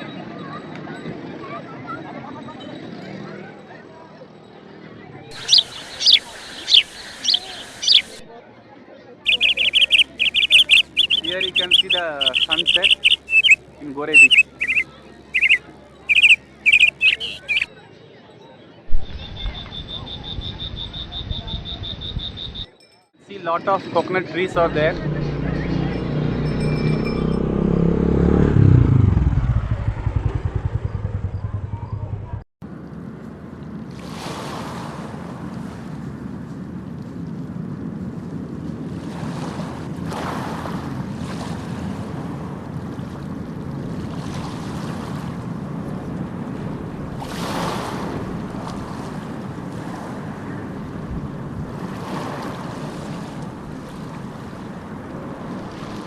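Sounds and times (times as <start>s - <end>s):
sea surf washing onto beach: 5.3s - 8.3s, 38.7s - 56.0s
wind rumbling on microphone: 5.3s - 8.3s, 18.9s - 22.6s, 28.1s - 56.0s
engine chugging: 24.6s - 32.4s.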